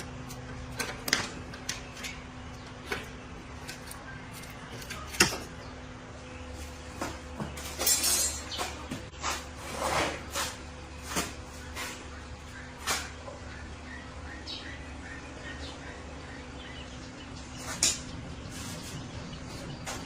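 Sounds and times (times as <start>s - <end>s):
steady low hum: 0.0s - 20.0s
short scraping rattle: 7.6s - 11.2s.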